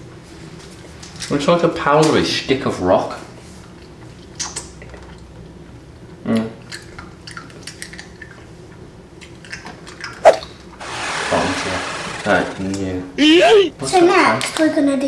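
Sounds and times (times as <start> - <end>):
short voiced sound: 13.2 - 13.8.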